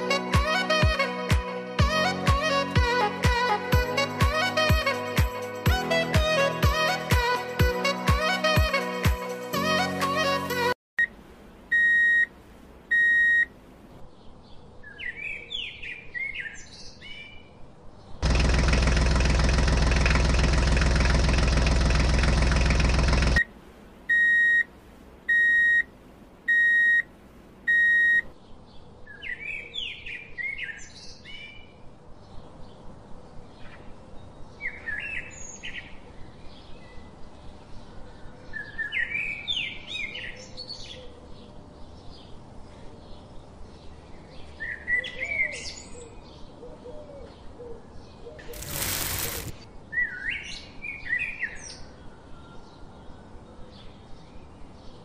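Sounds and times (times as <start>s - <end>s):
electronic beeps: 11.7s - 12.3s, 12.9s - 13.5s, 24.1s - 24.7s, 25.3s - 25.9s, 26.5s - 27.1s, 27.7s - 28.3s
birds chirping: 27.7s - 55.0s
loud steady noise: 48.5s - 49.6s.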